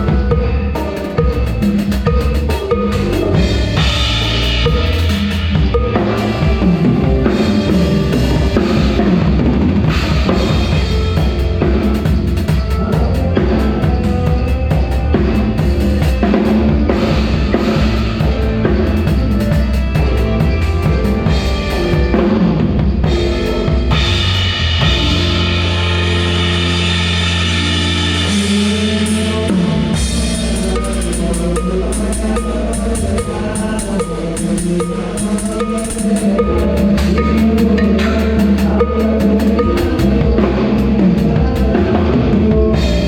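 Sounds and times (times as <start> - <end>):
drum kit: 0.0 - 43.0
live band playing: 0.0 - 43.0.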